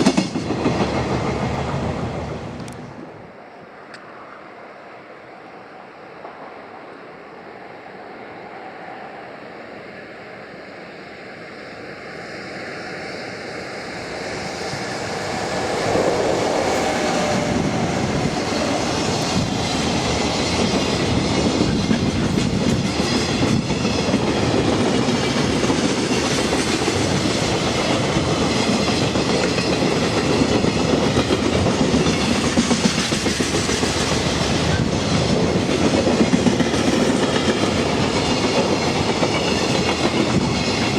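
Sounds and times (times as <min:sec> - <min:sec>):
train wheels clickety-clack: 0:00.0 - 0:02.9, 0:14.2 - 0:40.9
electric locomotive hauling freight: 0:00.0 - 0:40.9.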